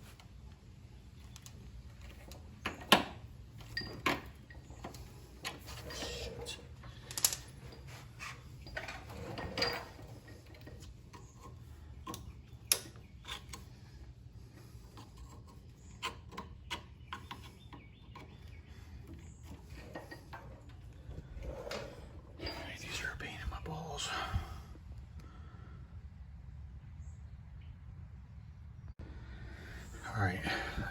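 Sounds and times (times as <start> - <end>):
steady low hum: 17.2 - 30.9.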